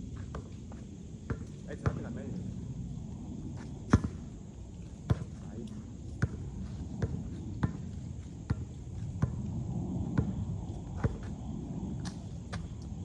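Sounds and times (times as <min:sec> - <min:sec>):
basketball bouncing on hard court: 0:01.3 - 0:02.0, 0:03.9 - 0:04.2, 0:05.1 - 0:05.5, 0:06.2 - 0:09.4, 0:10.1 - 0:10.4, 0:11.0 - 0:11.3.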